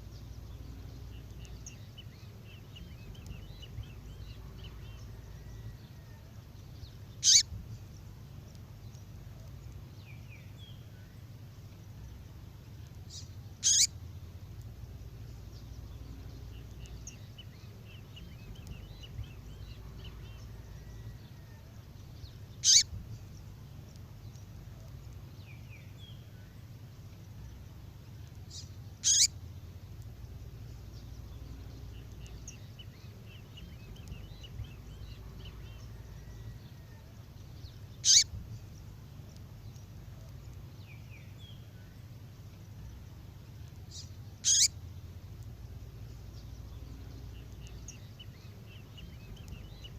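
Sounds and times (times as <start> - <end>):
steady low hum: 0.0 - 49.9
sharp songbird call: 7.2 - 7.5, 13.2 - 13.9, 22.6 - 23.0, 28.5 - 29.3, 38.0 - 38.3, 43.9 - 44.8.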